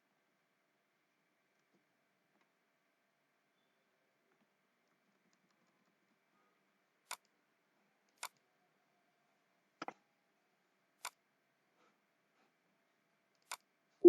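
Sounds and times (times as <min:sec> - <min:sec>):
computer mouse clicks: 0:07.1 - 0:07.3, 0:08.1 - 0:08.4, 0:13.3 - 0:13.7.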